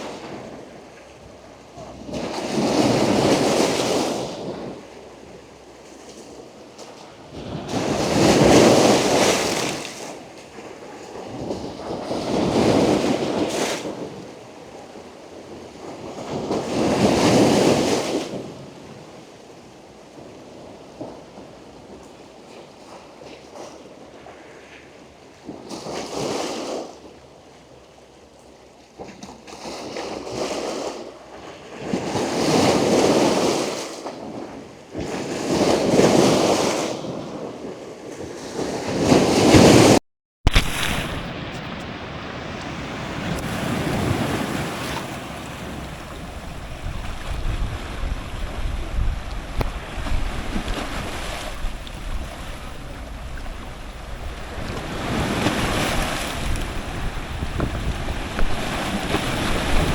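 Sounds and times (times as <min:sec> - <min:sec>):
ocean surf washing in: 0:00.0 - 0:06.2, 0:35.7 - 0:59.9
dull water rush with rumble: 0:00.0 - 0:59.9.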